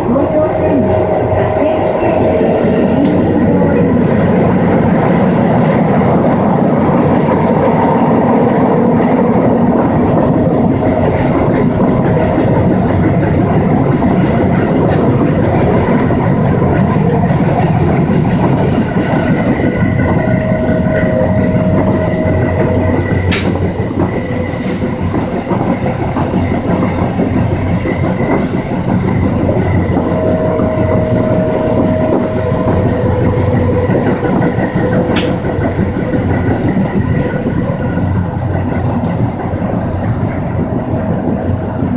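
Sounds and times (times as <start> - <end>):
train wheels rumbling on rail: 0.0 - 41.9
high squealing tones: 17.9 - 25.2, 29.1 - 37.1
sharp click: 23.3 - 23.6.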